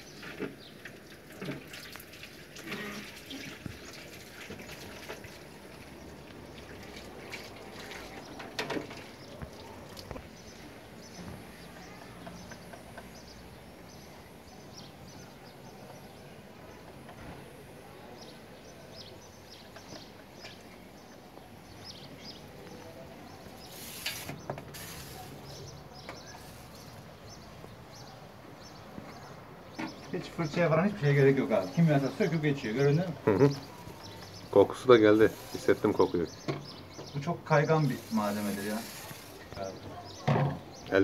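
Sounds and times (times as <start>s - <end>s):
low background noise: 0.0s - 41.0s
short hiss: 23.6s - 25.6s.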